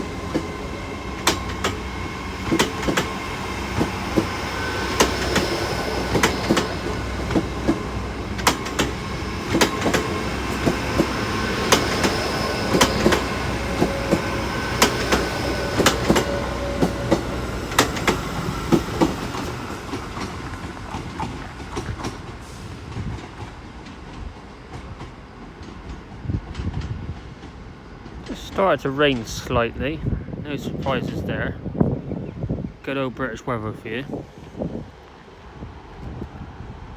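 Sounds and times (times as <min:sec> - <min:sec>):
train wheels clicking over rail joints: 0:00.0 - 0:29.5
train engine rumble: 0:00.0 - 0:36.9.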